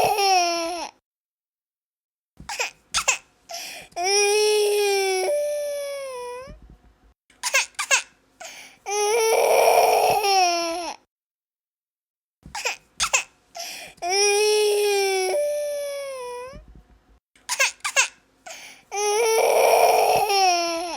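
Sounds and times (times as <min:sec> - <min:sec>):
baby crying: 0:00.0 - 0:01.0, 0:04.0 - 0:06.6, 0:08.9 - 0:11.0, 0:13.6 - 0:16.6, 0:17.6 - 0:20.9.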